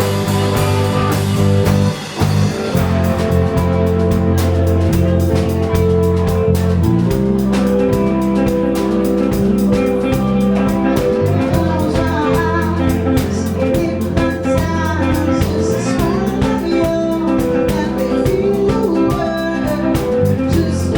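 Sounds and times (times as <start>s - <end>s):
bass guitar: 0.0s - 20.9s
drum kit: 0.0s - 20.9s
electric guitar: 0.0s - 20.9s
person singing: 5.4s - 20.9s.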